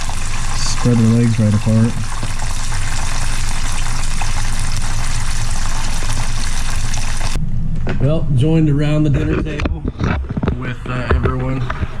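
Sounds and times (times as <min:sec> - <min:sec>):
frog legs sizzling in oil: 0:00.0 - 0:07.4.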